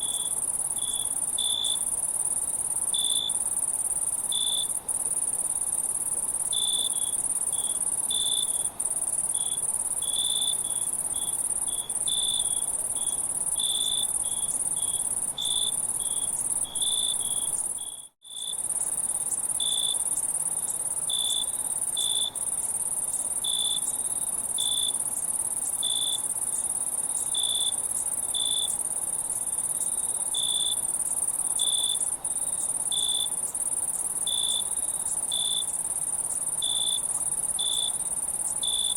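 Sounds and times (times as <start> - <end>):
crickets chirping: 0.0 - 38.9
insect high trill: 29.9 - 38.9.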